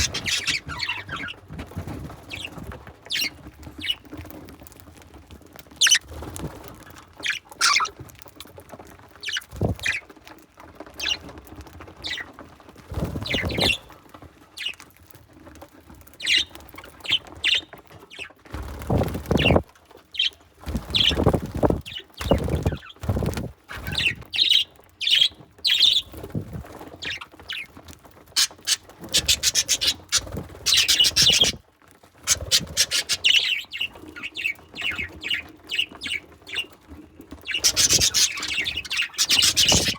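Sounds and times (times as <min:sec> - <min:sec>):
budgerigars chirping and squawking: 0:00.0 - 0:04.1, 0:05.8 - 0:06.1, 0:07.2 - 0:08.0, 0:09.2 - 0:10.0, 0:11.0 - 0:11.3, 0:13.1 - 0:13.9, 0:16.2 - 0:18.2, 0:19.0 - 0:19.6, 0:20.2 - 0:26.2, 0:27.0 - 0:27.7, 0:28.3 - 0:31.6, 0:32.2 - 0:36.7, 0:37.4 - 0:39.9
birds rustling and pecking: 0:00.0 - 0:39.9.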